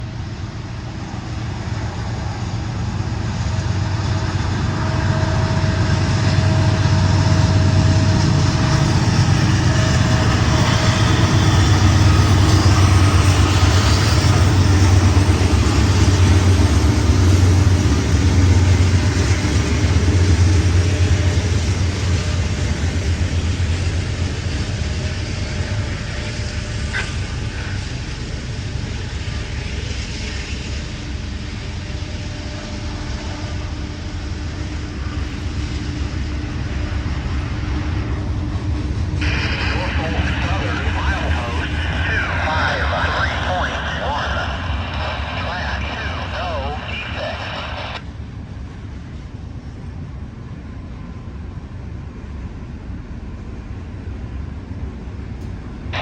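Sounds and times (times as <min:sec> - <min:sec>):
locomotive engines running: 0:00.0 - 0:30.8
rail cars rolling on track: 0:00.0 - 0:40.0.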